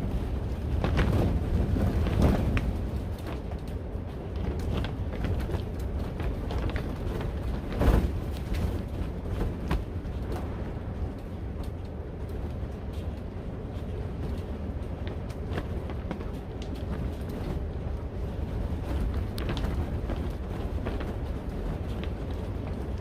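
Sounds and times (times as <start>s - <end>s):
high wind gusts: 0.0s - 23.0s.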